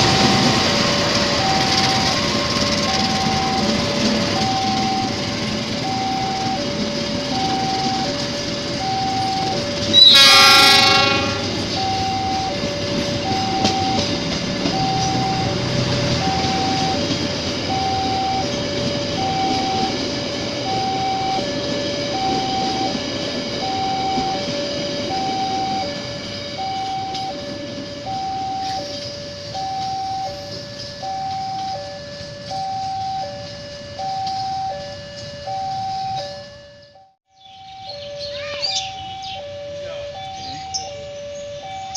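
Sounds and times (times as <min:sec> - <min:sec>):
train rumbling over rails: 0:00.0 - 0:36.7
locomotive horn blast: 0:09.2 - 0:12.4.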